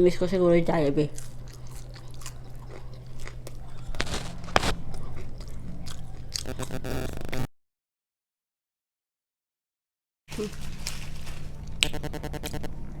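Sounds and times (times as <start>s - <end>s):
low hum: 0.0s - 7.5s, 10.3s - 13.0s
chewing and biting: 1.1s - 7.2s
sharp crunches: 1.2s - 7.4s.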